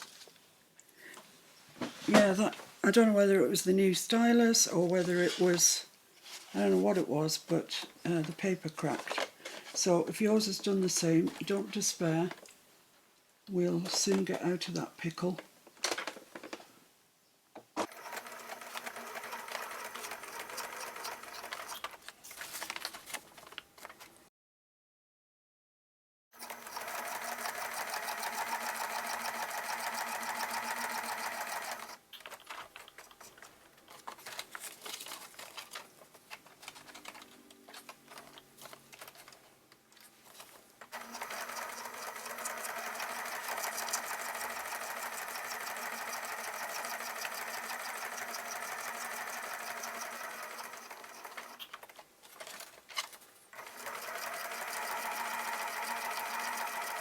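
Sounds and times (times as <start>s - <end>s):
sewing machine stitching: 17.8s - 22.0s, 26.4s - 32.0s, 40.9s - 52.6s, 53.6s - 57.0s.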